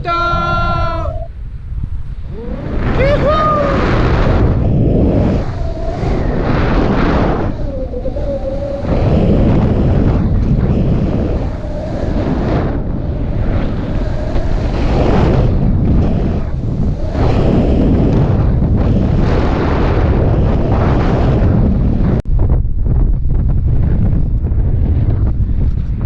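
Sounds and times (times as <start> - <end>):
wind buffeting microphone: 0.0 - 26.0
faint thin whistle: 1.0 - 1.3.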